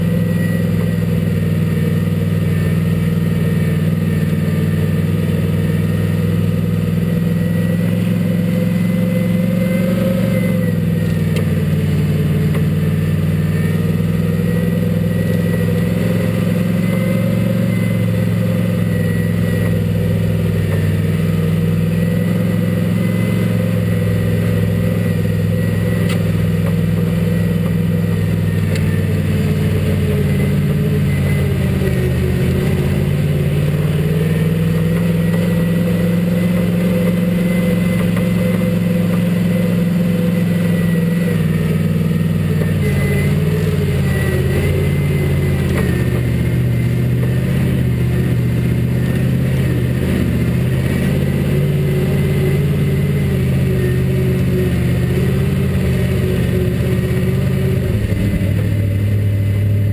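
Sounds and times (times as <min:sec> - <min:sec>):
race car engine running: 0:00.0 - 0:59.9.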